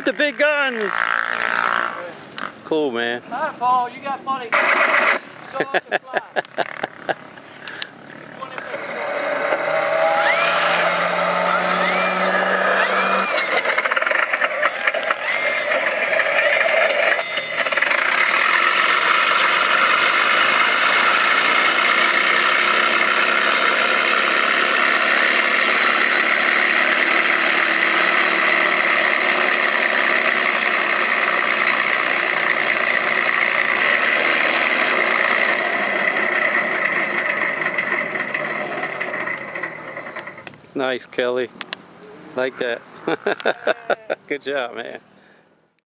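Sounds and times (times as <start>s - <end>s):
model airplane engine running: 7.6s - 40.6s.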